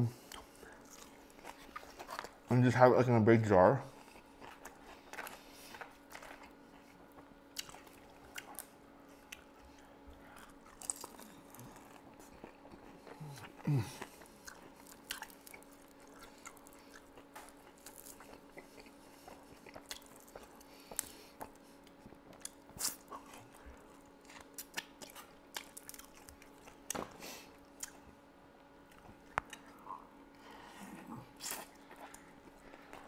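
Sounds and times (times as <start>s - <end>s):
faint steady hum: 0.0s - 33.0s
chewing and crunching: 0.1s - 2.8s, 3.4s - 33.0s
person humming: 13.2s - 14.0s.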